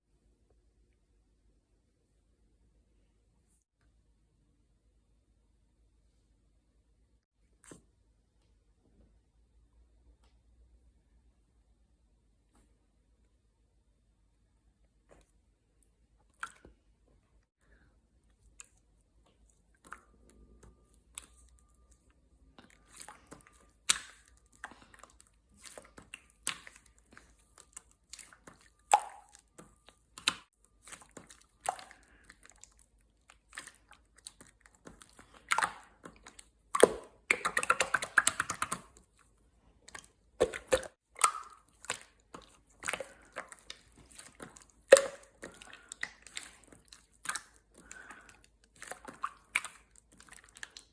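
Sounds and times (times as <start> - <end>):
slime squished by hand: 18.3 - 50.9.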